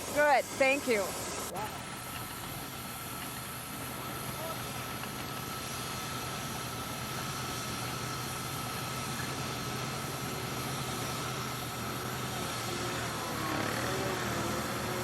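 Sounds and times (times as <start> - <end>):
sawmill machinery rumble: 0.0 - 15.0.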